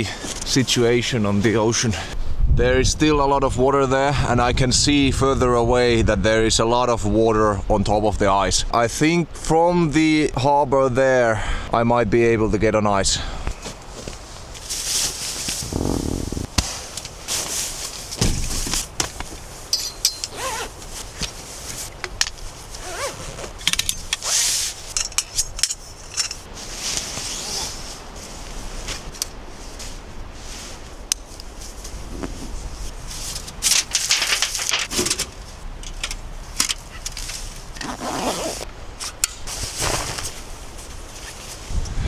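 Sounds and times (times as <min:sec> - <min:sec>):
camping gear rustling and knocking: 0:13.5 - 0:30.0, 0:30.7 - 0:41.6.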